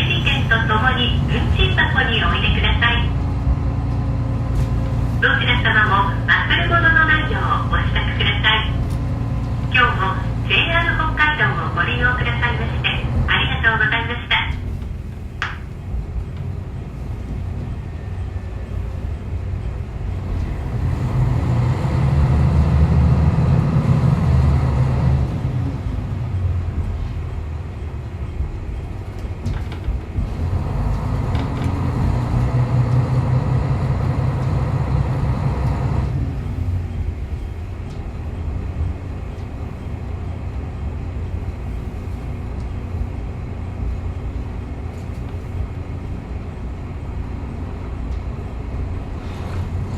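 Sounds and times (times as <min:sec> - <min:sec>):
railcar engine swelling: 0:00.0 - 0:49.9
railcar rolling over rails: 0:00.0 - 0:49.9.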